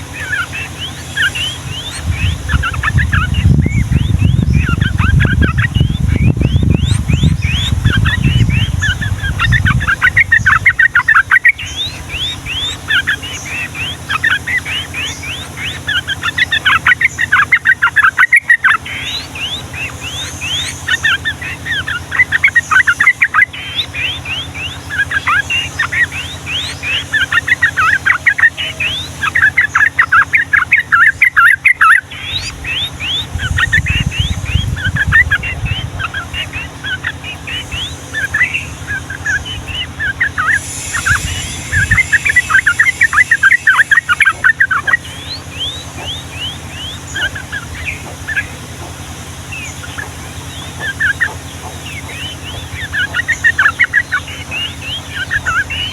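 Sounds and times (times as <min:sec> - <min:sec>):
low rumble: 0:00.0 - 0:14.1, 0:32.1 - 0:55.9
bulbuls singing rapid chirps: 0:00.0 - 0:55.9.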